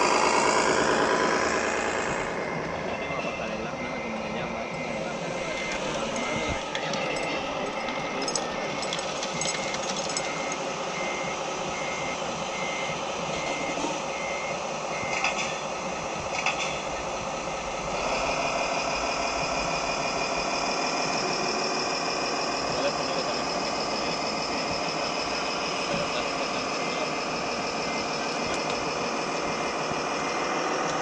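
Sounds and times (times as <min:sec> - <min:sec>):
buzzing machine: 0:00.0 - 0:02.6
model motors running: 0:00.0 - 0:02.9
high-pitched reversing beeper: 0:00.0 - 0:14.6, 0:18.0 - 0:30.8.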